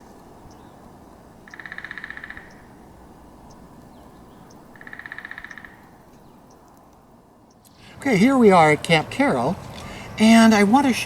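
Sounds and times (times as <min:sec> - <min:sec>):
outdoor hiss: 0:06.0 - 0:10.9.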